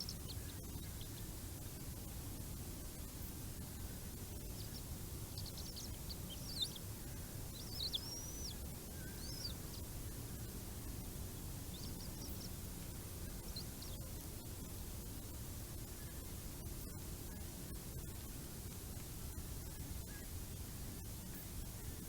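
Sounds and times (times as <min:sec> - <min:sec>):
high-pitched bird chirps: 0:07.6 - 0:08.6.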